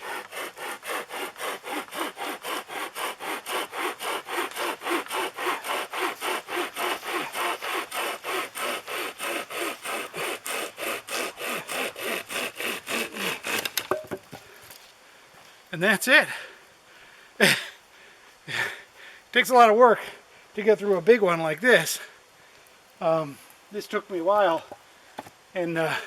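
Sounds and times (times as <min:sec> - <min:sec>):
pocket chainsaw sawing wood: 0:00.0 - 0:14.2.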